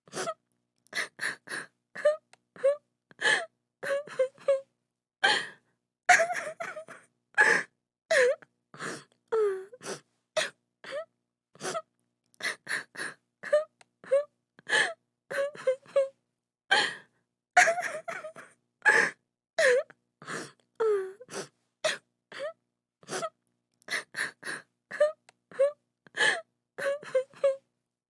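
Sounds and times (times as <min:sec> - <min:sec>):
woman crying: 0:06.1 - 0:07.0, 0:17.6 - 0:18.5.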